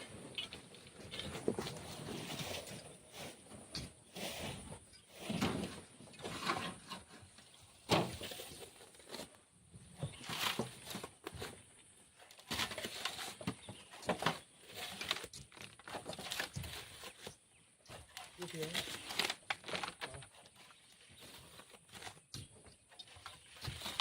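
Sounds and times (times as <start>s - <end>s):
shovel scraping sand: 4.0s - 6.8s.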